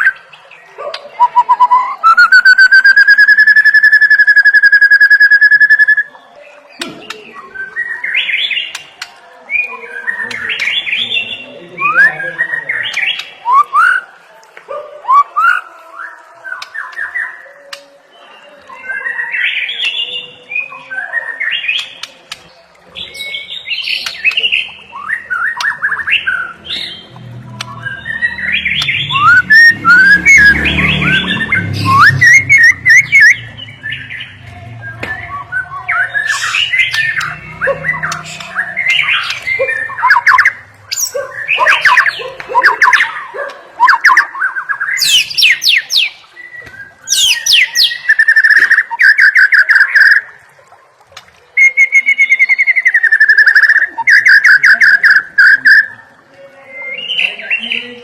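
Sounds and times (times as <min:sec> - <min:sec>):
bird singing whistles and trills: 0:01.1 - 0:06.2, 0:09.5 - 0:14.1, 0:23.0 - 0:50.4, 0:51.6 - 0:58.0.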